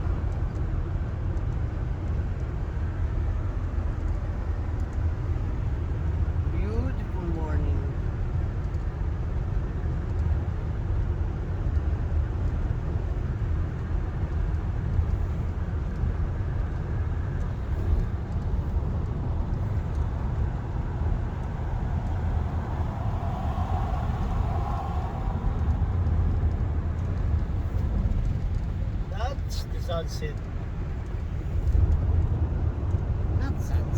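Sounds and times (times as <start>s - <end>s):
car interior road rumble: 0.0s - 33.9s.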